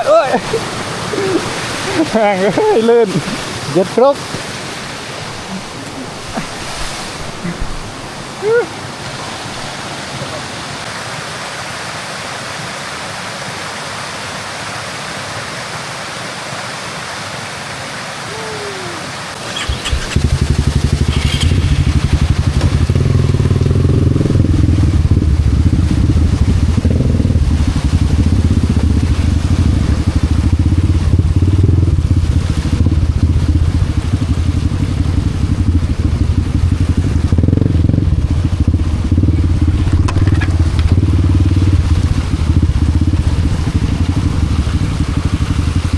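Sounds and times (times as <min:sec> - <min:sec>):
waterfall rushing water: 0:00.0 - 0:45.9
motorcycle engine running at low revs: 0:19.4 - 0:45.9.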